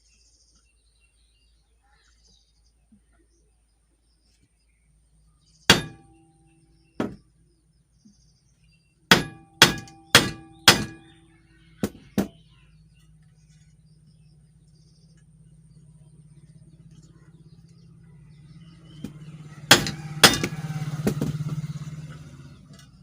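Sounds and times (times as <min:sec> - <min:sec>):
hammer tapping metal shaft: 0:05.7 - 0:06.2, 0:09.1 - 0:11.2, 0:19.0 - 0:21.6.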